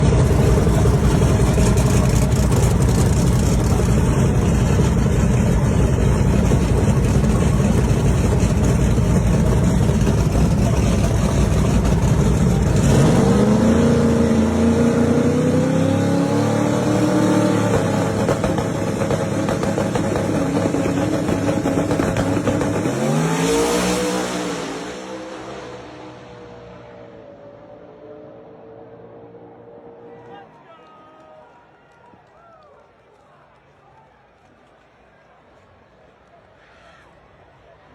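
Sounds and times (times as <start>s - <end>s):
truck engine revving: 0.0s - 30.3s.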